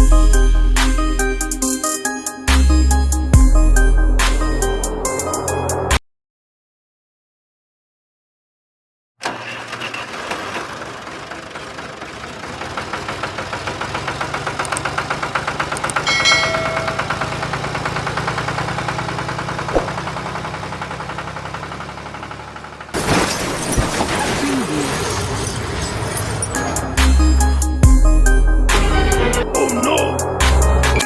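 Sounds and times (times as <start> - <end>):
tractor engine chugging: 9.2 - 23.0.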